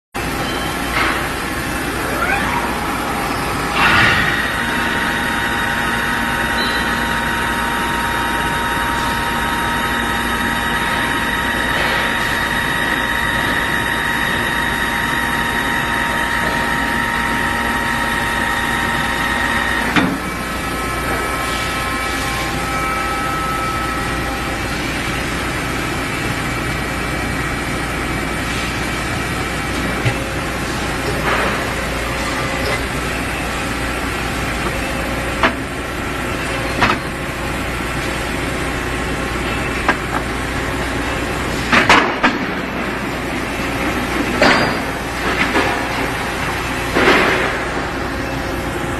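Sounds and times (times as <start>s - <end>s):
welding machine whine: 0.2s - 48.9s.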